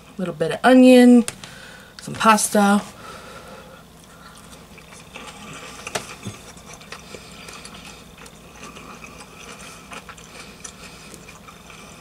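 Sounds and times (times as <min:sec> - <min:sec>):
low room hum: 0:00.0 - 0:12.0
person chewing food: 0:03.8 - 0:12.0.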